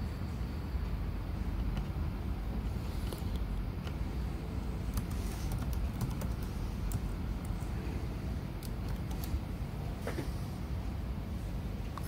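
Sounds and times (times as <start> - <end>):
laptop keys clicking: 4.9 - 7.6, 8.6 - 9.4.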